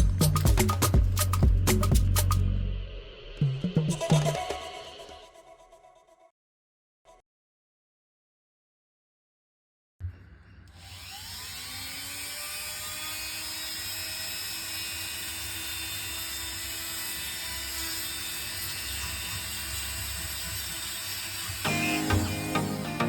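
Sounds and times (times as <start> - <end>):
electric motor whine: 10.8 - 14.0.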